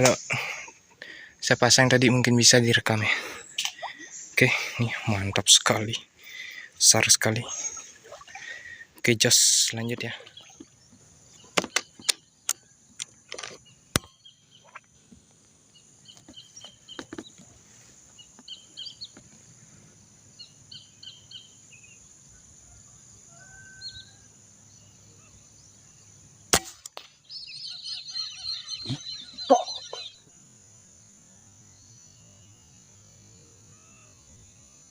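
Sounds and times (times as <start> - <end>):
small birds chirping: 0.0 - 22.3, 27.1 - 34.9
sharp clicks and knocks: 11.5 - 14.1.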